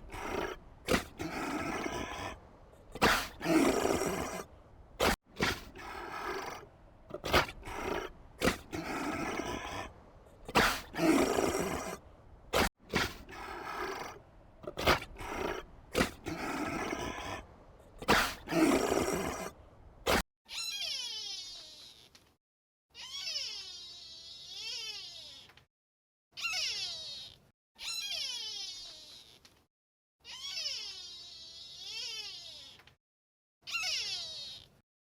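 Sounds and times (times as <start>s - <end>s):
rough noisy animal call: 0.0s - 21.4s.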